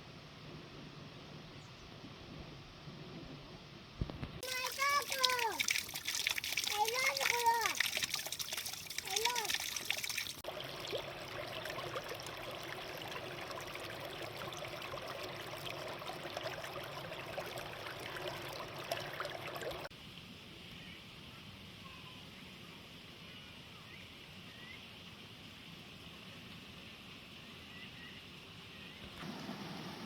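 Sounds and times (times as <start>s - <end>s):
small crackles and splashes: 4.0s - 20.8s
water running and trickling: 4.4s - 19.9s.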